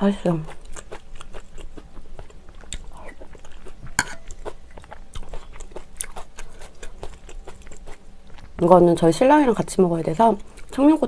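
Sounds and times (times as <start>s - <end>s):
chewing with wet mouth clicks: 0.4s - 8.6s.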